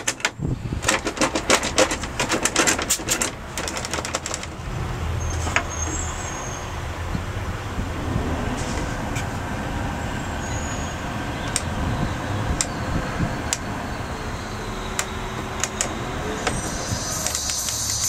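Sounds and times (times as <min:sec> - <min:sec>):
sharp rattles and clicks: 0:00.0 - 0:06.1, 0:14.9 - 0:18.0
truck engine and road rumble: 0:00.0 - 0:18.0.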